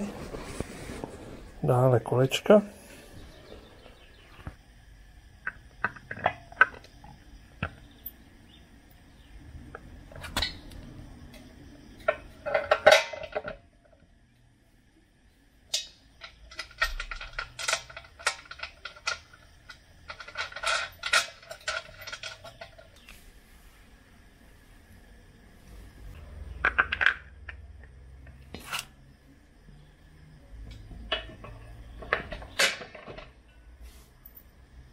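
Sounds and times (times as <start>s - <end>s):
metal parts clinking and rattling: 12.0s - 13.6s, 15.7s - 23.2s, 31.1s - 33.4s
metallic jangling: 15.8s - 23.0s.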